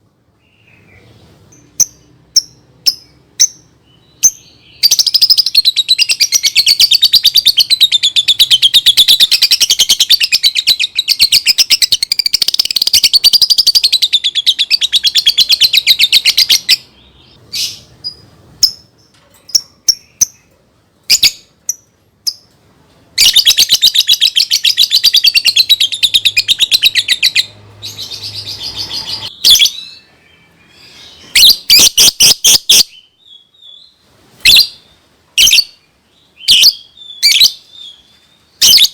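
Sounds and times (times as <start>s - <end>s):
bird chirps: 0.4s - 22.6s, 23.2s - 38.9s
bird fast trills: 23.2s - 29.9s.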